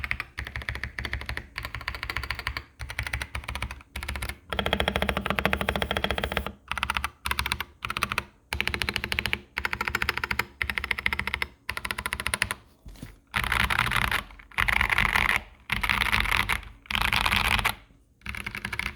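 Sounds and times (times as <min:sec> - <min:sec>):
mechanical keyboard typing: 0:00.0 - 0:12.6, 0:13.3 - 0:18.9.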